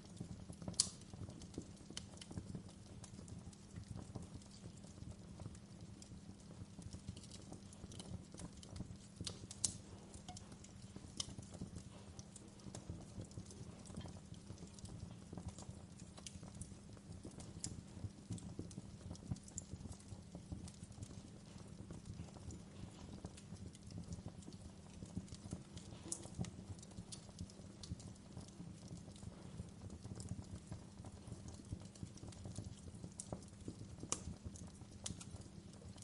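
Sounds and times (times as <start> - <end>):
fire crackling: 0.0 - 36.0.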